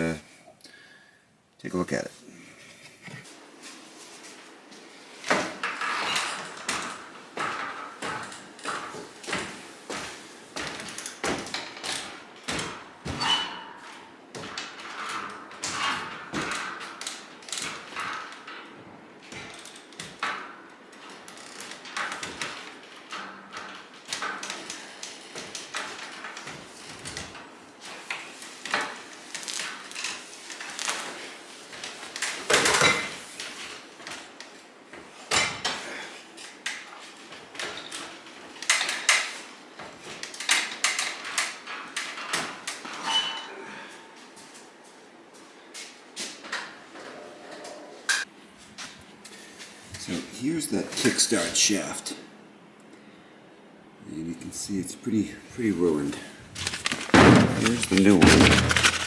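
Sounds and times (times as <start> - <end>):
parts knocking and clunking: 56.5 - 59.0.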